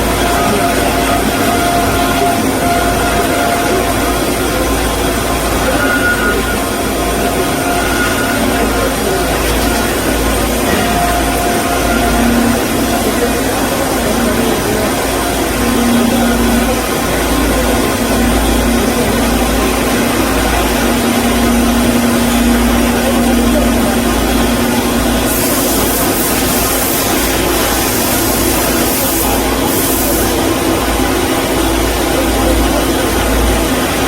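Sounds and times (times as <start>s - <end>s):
band saw humming: 0.0s - 34.0s
hiss: 25.2s - 30.4s.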